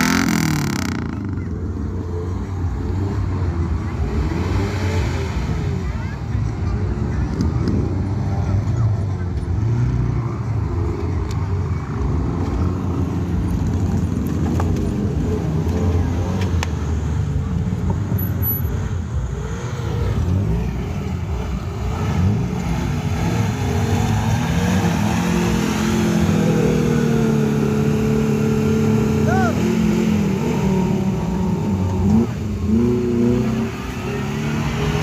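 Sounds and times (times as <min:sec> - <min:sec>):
vehicle engine revving under load: 0:00.0 - 0:01.6, 0:18.7 - 0:35.0.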